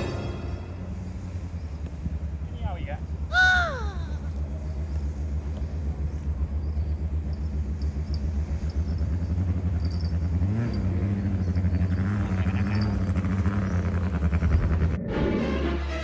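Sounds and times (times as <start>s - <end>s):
higher buzzing: 0.0s - 1.3s
boat engine rumble: 0.0s - 10.4s.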